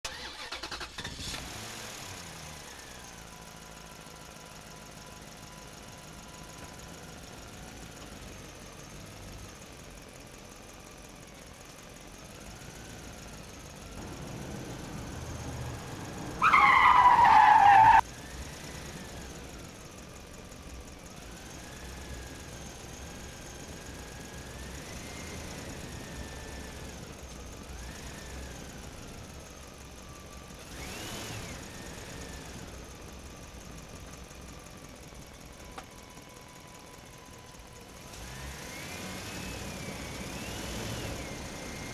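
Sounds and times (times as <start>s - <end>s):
vehicle engine running: 0.4s - 41.9s
loud high squeal: 16.4s - 18.0s.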